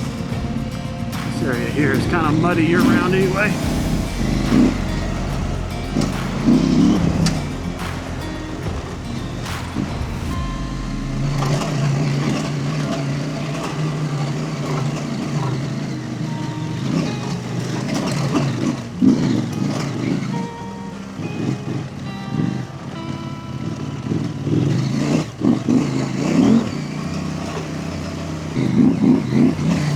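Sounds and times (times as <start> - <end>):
motorcycle engine running: 0.0 - 29.9.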